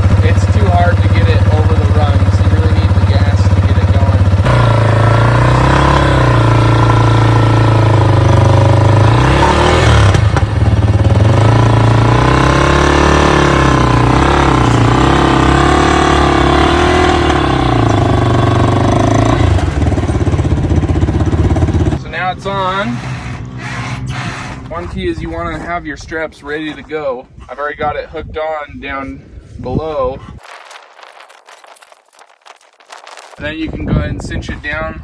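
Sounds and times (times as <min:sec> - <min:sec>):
motorcycle engine revving: 0:00.0 - 0:25.7.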